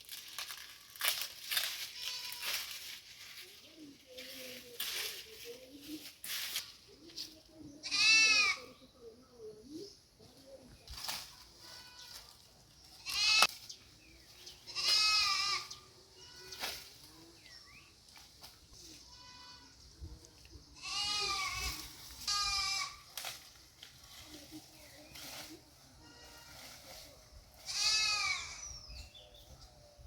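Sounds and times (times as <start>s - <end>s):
goats bleating: 7.8s - 8.7s, 13.0s - 13.5s, 14.7s - 16.6s, 20.8s - 23.1s, 27.6s - 28.6s.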